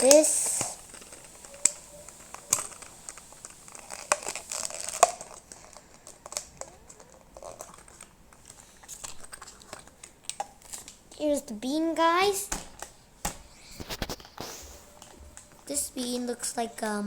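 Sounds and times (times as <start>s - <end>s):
sharp clicks: 0.0s - 11.0s
plastic packaging crinkling: 0.0s - 16.5s.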